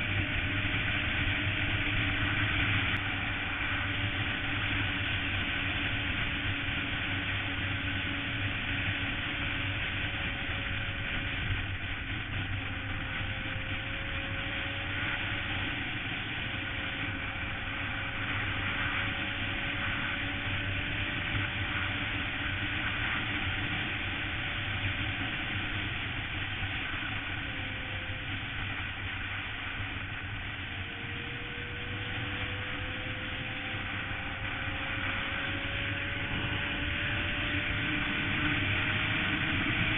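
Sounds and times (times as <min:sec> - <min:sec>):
motorcycle engine hum: 0:00.0 - 0:39.9.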